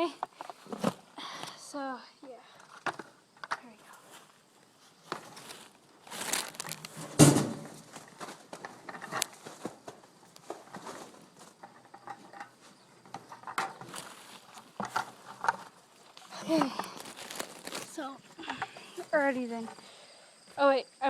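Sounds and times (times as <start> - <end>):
rustling and crinkling: 0.0 - 1.3, 2.4 - 20.6
small clicks and knocks: 2.6 - 3.7, 8.0 - 9.4, 11.6 - 17.8
loud thump: 7.0 - 7.7.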